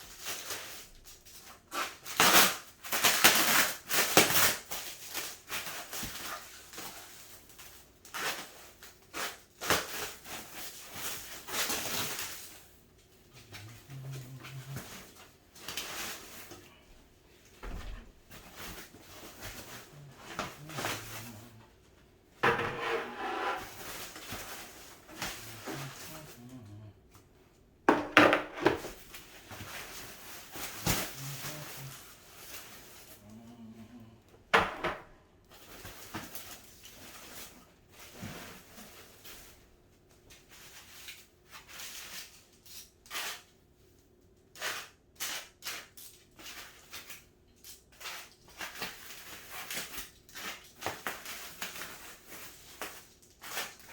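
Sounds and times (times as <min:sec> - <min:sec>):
parts knocking and clattering: 0:27.9 - 0:29.0.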